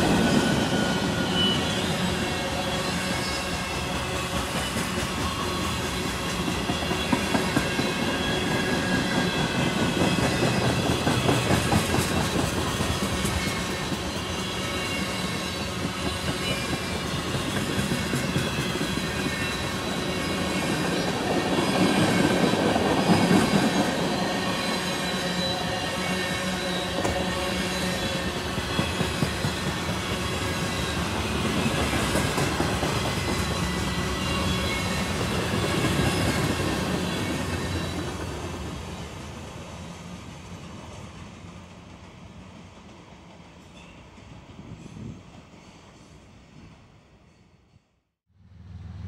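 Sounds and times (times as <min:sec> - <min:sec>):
high wheel squeal: 0:00.0 - 0:38.2
freight train wheels rumbling and clacking: 0:00.0 - 0:46.7.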